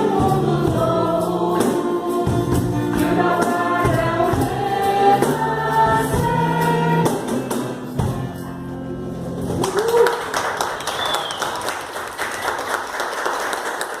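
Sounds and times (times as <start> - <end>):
vocal group singing: 0.0 - 7.5
acoustic guitar: 0.0 - 9.8
bass guitar: 0.0 - 10.0
audience applauding: 9.5 - 14.0.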